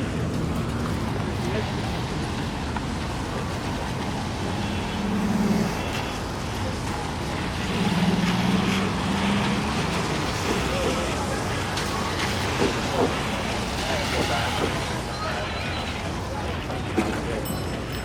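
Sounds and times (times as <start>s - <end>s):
passing vehicle engine hum: 0.0s - 12.5s
tyres hissing on wet road: 0.0s - 17.4s.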